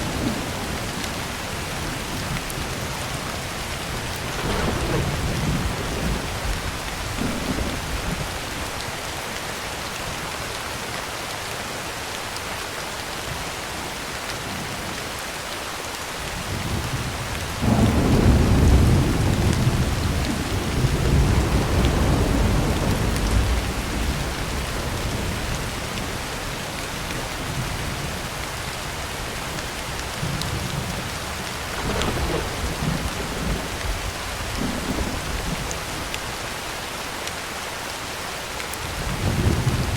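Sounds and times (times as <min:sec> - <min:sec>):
thunder rumbling: 0:00.0 - 0:08.5, 0:16.5 - 0:28.3, 0:29.8 - 0:36.2, 0:38.8 - 0:39.9
heavy rain on a tin roof: 0:00.0 - 0:39.9.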